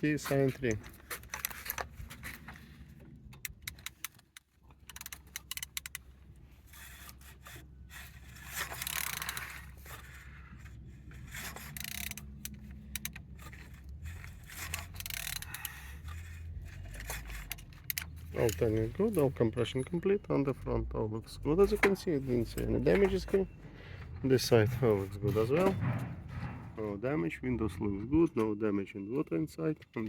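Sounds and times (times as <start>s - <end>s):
metallic clicks of engine turning: 0.0s - 30.0s
wrench scraping: 0.2s - 2.8s, 3.4s - 20.0s.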